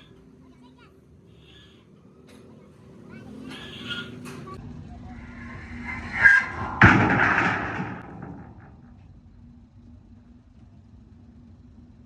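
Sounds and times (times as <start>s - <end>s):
steel sheet crashing down: 5.1s - 9.0s.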